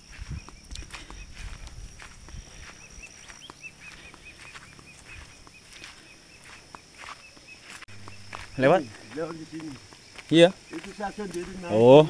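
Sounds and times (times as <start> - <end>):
footsteps crunching on a path: 0.0 - 12.0
bird chirping rapidly: 2.6 - 12.0.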